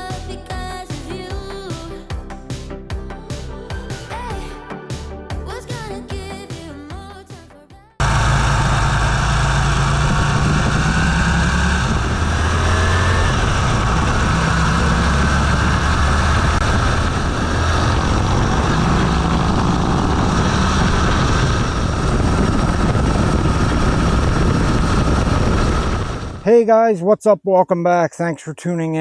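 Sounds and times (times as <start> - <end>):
motorcycle engine running: 8.0 - 26.4
wind rush on microphone: 8.0 - 26.5.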